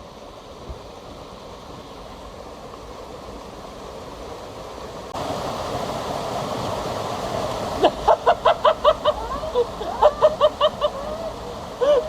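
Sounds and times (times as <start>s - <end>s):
mountain stream rushing: 0.0s - 12.0s.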